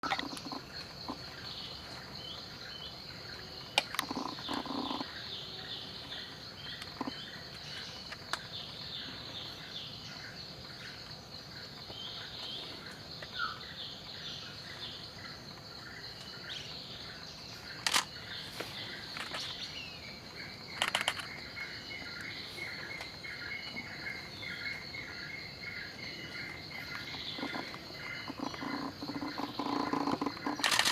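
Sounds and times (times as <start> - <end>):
high insect drone: 0.0 - 30.9
sharp clicks: 17.8 - 18.1, 20.7 - 21.4, 27.4 - 30.9.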